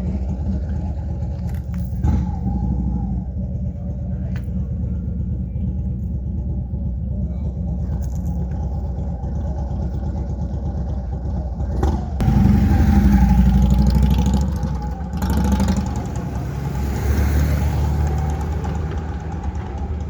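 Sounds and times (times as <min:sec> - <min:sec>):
car engine idling: 0:00.0 - 0:20.0
car driving up: 0:11.8 - 0:20.0.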